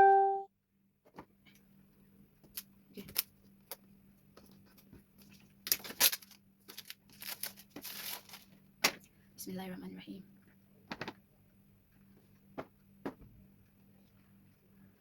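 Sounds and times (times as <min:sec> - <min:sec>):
packaging scraping and rustling: 0:05.3 - 0:08.6.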